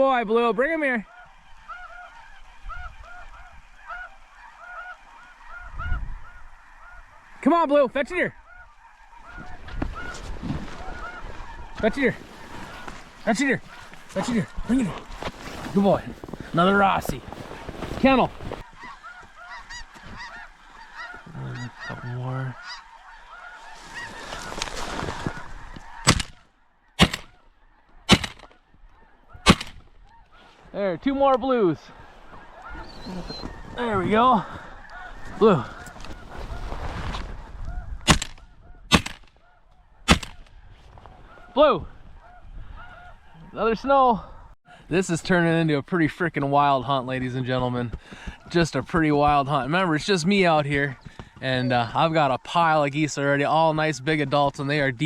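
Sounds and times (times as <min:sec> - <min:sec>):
geese honking: 0:00.0 - 0:54.8
wind rumble on microphone: 0:05.6 - 0:06.6, 0:35.1 - 0:38.9
shotgun shots: 0:26.0 - 0:26.4, 0:27.0 - 0:27.4, 0:28.1 - 0:28.5, 0:29.4 - 0:29.8, 0:38.1 - 0:39.3, 0:40.1 - 0:40.4.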